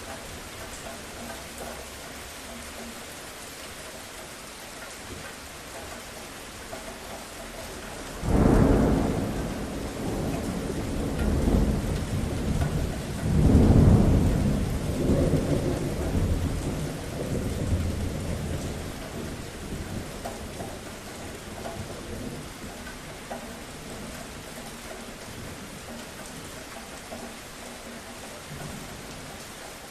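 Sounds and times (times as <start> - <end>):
rain falling: 0.0 - 29.9
thunder rumbling: 8.0 - 22.8.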